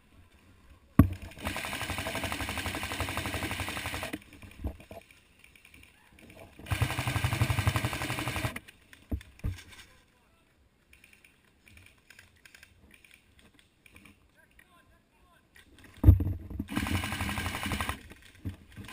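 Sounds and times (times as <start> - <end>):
airsoft guns firing bursts: 1.0 - 4.2, 6.6 - 8.6, 16.7 - 18.1.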